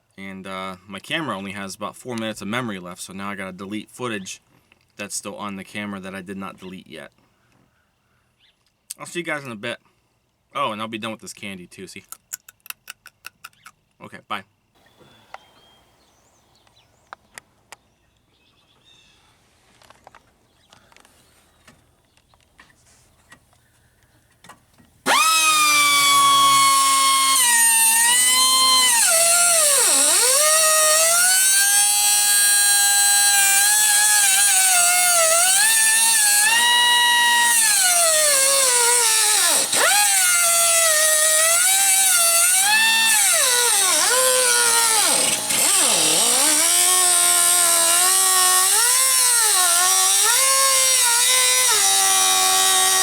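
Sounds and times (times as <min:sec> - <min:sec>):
power tool whining: 0:25.0 - 0:53.0.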